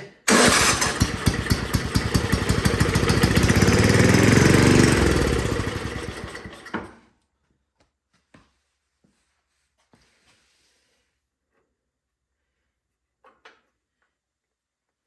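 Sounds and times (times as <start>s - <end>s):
snow blower engine firing: 0.3s - 6.9s.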